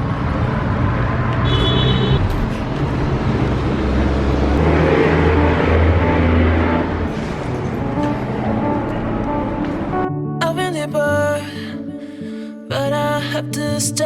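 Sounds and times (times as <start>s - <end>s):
vehicle engine passing: 0.0s - 10.0s.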